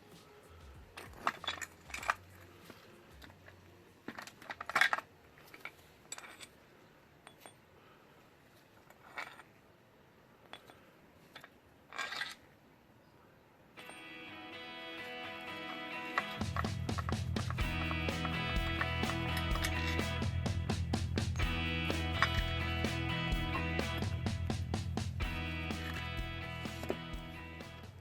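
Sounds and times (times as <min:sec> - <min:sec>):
metal bolts clinking: 0:04.2 - 0:06.6.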